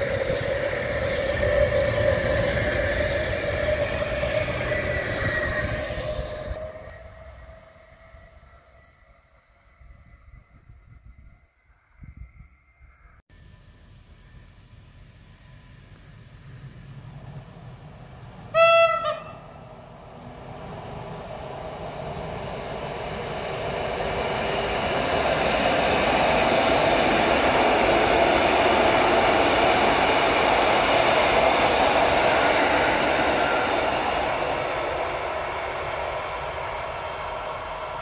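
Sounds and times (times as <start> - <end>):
train wheels rumbling on rails: 0.0 - 38.0
train horn blast: 18.5 - 19.7.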